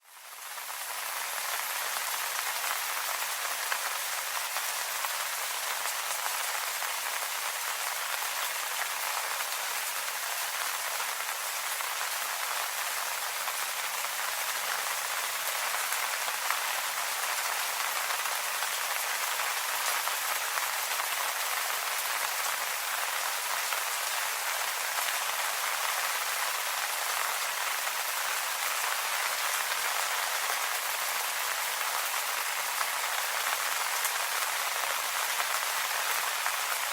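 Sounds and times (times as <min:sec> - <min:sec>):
rain pattering on leaves: 0:00.0 - 0:36.9.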